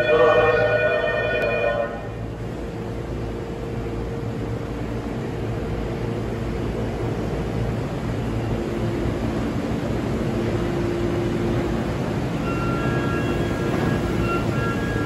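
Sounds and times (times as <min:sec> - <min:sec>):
high tone: 0:00.0 - 0:02.2
train equipment hum: 0:00.0 - 0:15.0.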